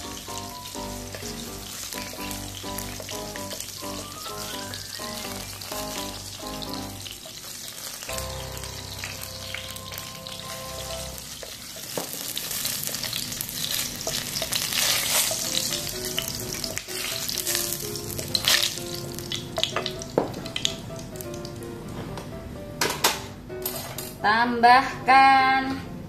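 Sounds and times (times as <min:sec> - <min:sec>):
shallots and garlic sizzling in oil: 0:00.0 - 0:21.7
wooden spoon stirring: 0:10.8 - 0:13.0.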